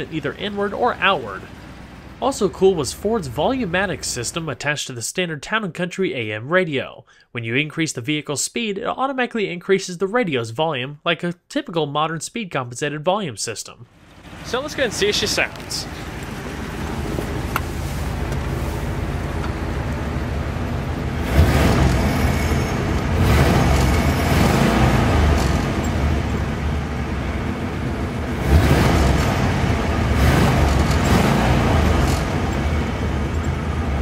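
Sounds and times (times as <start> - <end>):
car engine revving: 13.9 - 34.0.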